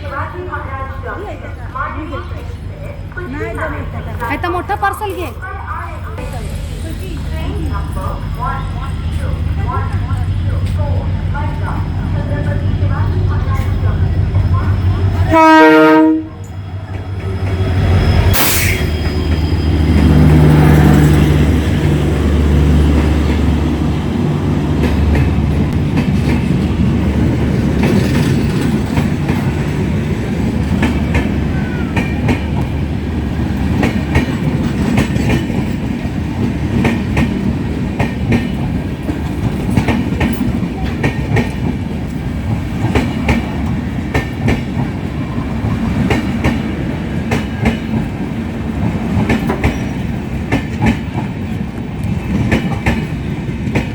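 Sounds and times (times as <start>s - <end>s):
locomotive engine hum: 0.0s - 53.9s
train coaches rumbling: 0.0s - 53.9s
wheels clacking over rail joints: 18.9s - 53.9s.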